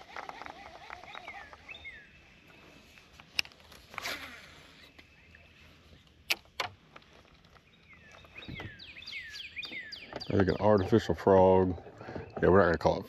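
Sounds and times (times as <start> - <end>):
bird chirp: 0.7 - 3.0, 7.2 - 13.0.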